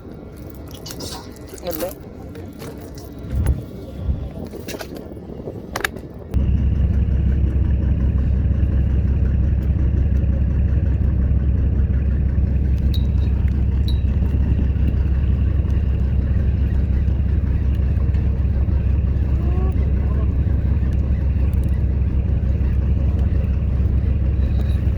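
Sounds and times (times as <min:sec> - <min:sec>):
boat engine low rumble: 0:00.0 - 0:24.9.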